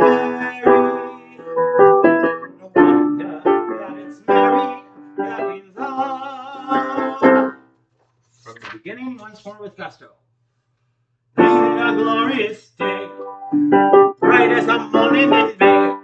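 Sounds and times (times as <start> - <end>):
piano chords: 0.0 - 7.6, 11.4 - 16.0.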